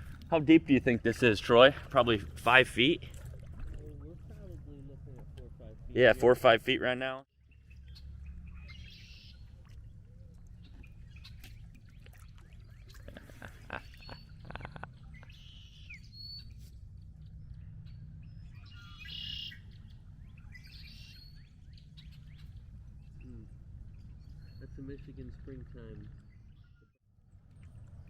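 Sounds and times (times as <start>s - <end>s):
birds chirping and calling: 7.5s - 9.5s, 10.1s - 16.6s, 17.2s - 26.9s.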